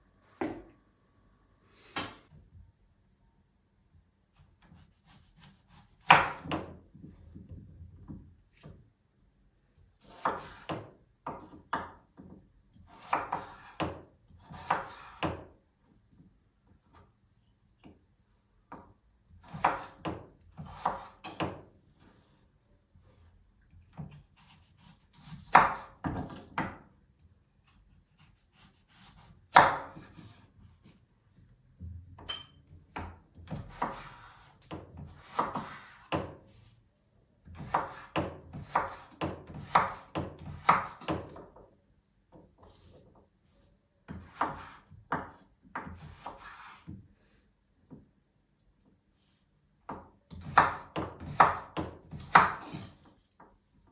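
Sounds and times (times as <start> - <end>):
knife on wooden cutting board: 12.9 - 15.2, 33.6 - 36.1, 44.2 - 44.9, 45.8 - 46.9.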